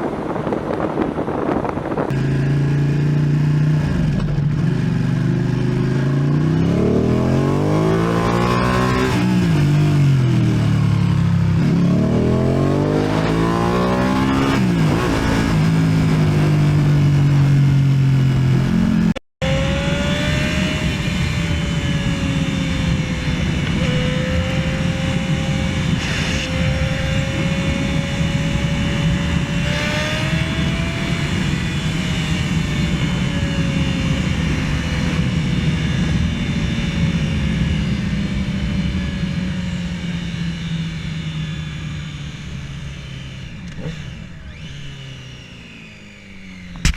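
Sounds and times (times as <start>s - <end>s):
motorcycle engine revving: 0.0s - 46.9s
wind and road noise: 0.0s - 46.9s
wavering whine: 19.4s - 46.9s.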